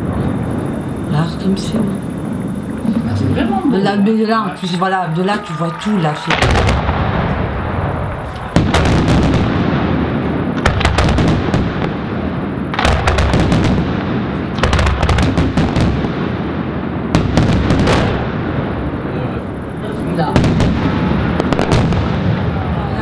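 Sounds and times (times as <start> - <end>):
fireworks booming: 0.0 - 23.0
fireworks sharp bangs: 0.0 - 23.0.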